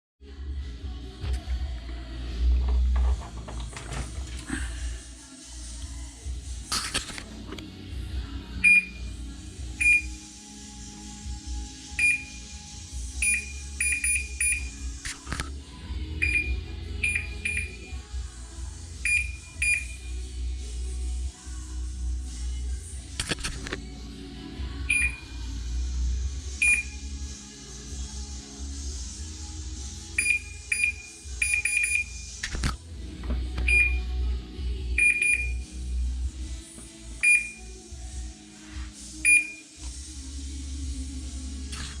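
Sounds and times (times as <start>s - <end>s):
short high-pitched beeps: 13.2s - 14.8s.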